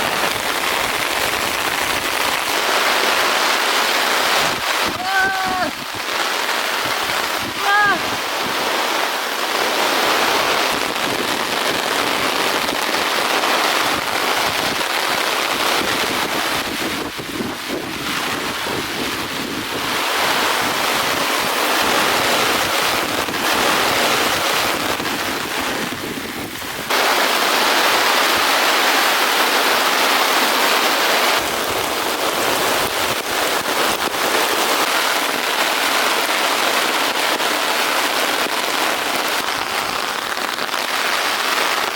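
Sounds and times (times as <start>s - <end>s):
heavy rain pouring: 0.0s - 41.9s
wind buffeting microphone: 15.5s - 26.9s.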